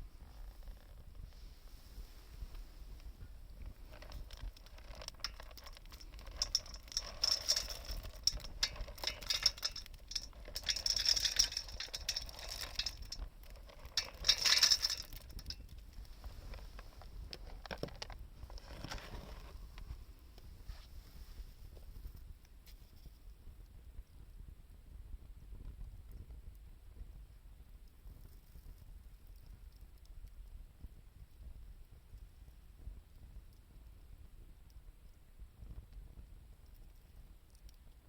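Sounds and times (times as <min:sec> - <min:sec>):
wood fire crackling and popping: 0:00.6 - 0:19.9.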